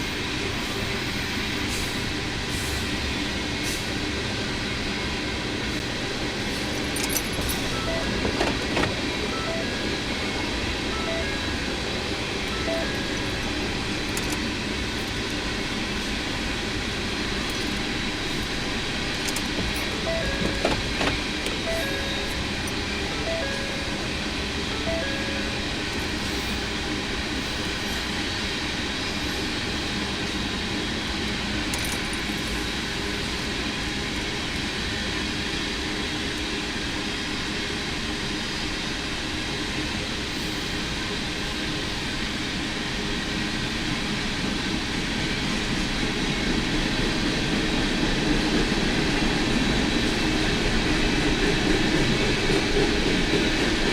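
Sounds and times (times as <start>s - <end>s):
freight train rolling past: 0.0s - 53.9s
short beeps: 7.7s - 8.3s, 9.3s - 11.7s, 12.5s - 13.4s, 20.0s - 21.0s, 21.6s - 22.6s, 23.2s - 25.7s.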